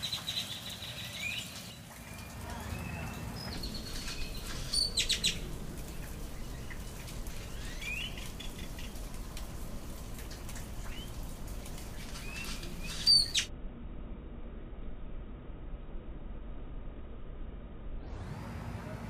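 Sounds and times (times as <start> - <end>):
small birds chirping: 0.0 - 13.5.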